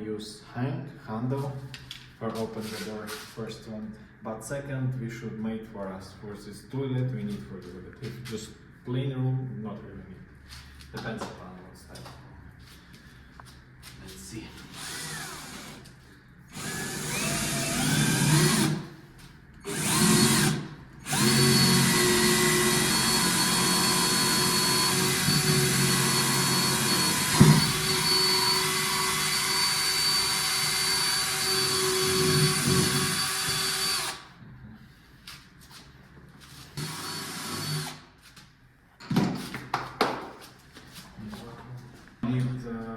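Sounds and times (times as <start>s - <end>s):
electric drill boring: 14.8s - 15.8s, 16.5s - 18.8s, 19.6s - 34.2s, 36.8s - 38.0s.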